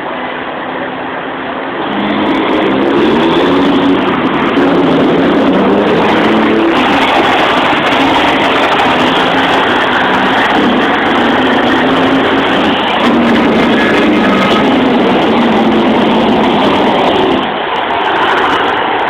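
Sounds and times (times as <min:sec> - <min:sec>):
truck engine driving past: 0:00.0 - 0:19.0.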